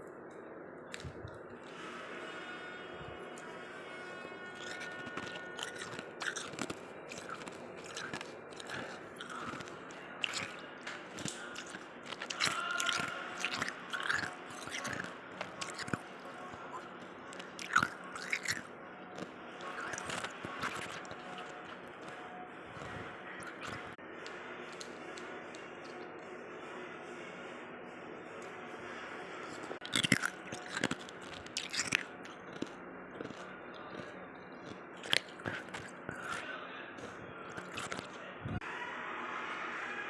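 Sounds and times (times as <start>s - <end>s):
person crunching ice: 4.5s - 22.2s, 22.8s - 23.9s, 29.8s - 38.1s.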